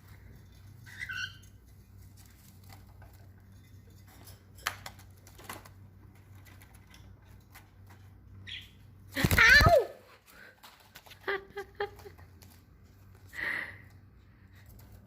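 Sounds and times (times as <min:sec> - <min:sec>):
bird chirp: 0:00.8 - 0:01.6, 0:08.4 - 0:08.9.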